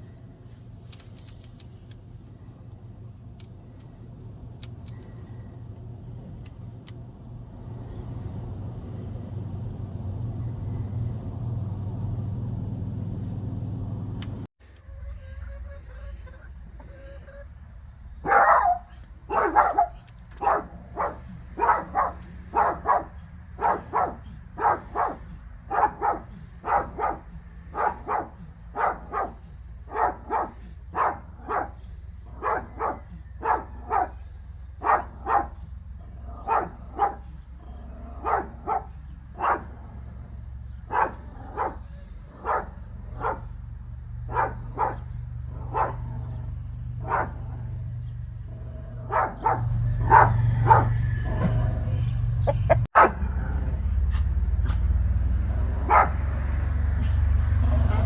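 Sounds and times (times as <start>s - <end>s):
steady low hum: 0.0s - 14.5s
dog barking: 18.2s - 47.8s, 48.9s - 54.9s, 55.7s - 56.4s, 57.7s - 58.0s.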